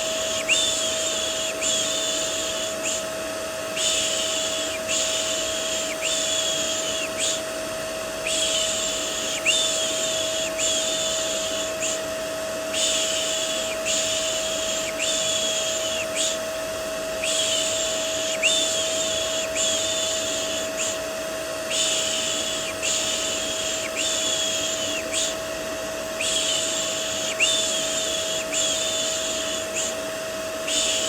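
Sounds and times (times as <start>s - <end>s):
vacuum cleaner motor hum: 0.0s - 31.0s
shushing hisses: 12.7s - 16.4s, 21.7s - 25.4s, 26.2s - 30.0s.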